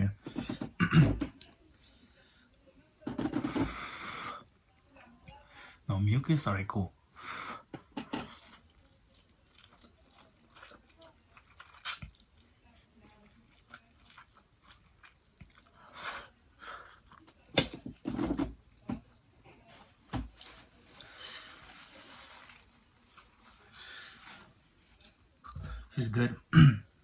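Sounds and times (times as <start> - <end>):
person chewing food: 8.1 - 17.7, 24.8 - 25.9.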